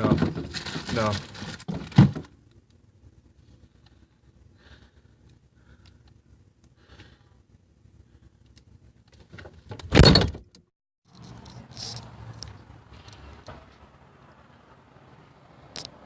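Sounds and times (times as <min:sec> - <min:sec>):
door shutting thump: 0:09.9 - 0:10.4.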